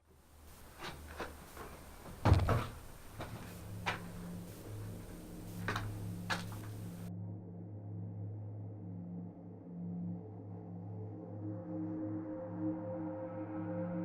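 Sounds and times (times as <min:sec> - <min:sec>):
person climbing through window: 0:00.5 - 0:07.1.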